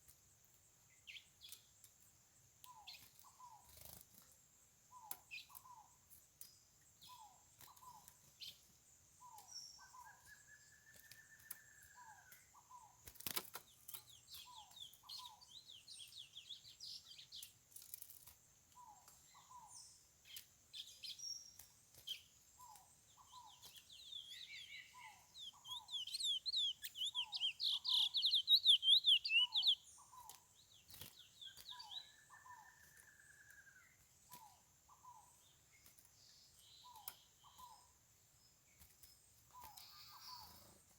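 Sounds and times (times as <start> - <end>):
finch twittering song: 4.9 - 17.6, 18.7 - 40.9
short paired bird calls: 22.1 - 35.3, 39.5 - 40.9.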